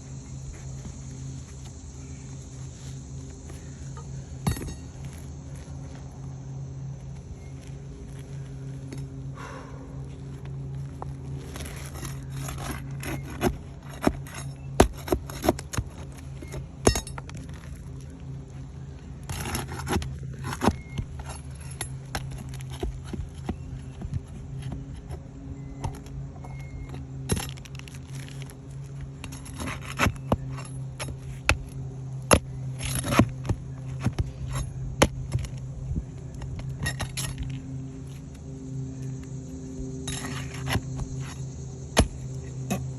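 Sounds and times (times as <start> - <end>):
steady low hum: 0.0 - 42.9
hand tools scraping roof shingles: 11.4 - 18.0, 19.2 - 35.8, 40.1 - 42.9.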